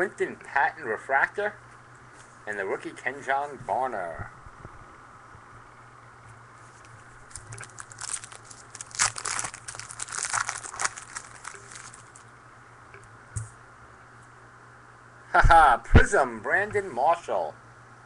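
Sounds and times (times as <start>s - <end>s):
packaging crinkling and rustling: 6.7s - 12.3s.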